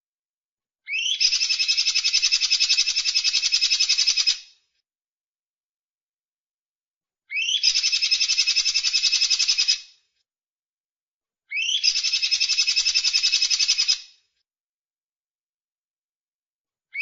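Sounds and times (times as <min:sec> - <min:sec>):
songbird trilling call: 0:00.9 - 0:04.3, 0:07.3 - 0:09.7, 0:11.6 - 0:14.0.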